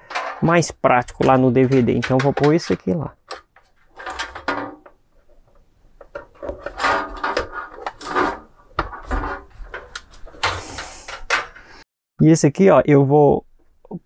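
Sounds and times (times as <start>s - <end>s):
cable scraping against computer case: 6.2s - 11.6s.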